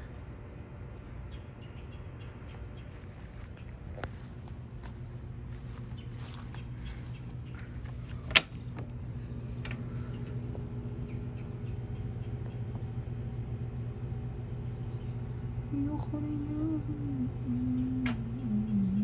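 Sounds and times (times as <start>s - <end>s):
steady low hum: 0.0s - 19.0s
pigeon cooing: 16.0s - 19.0s.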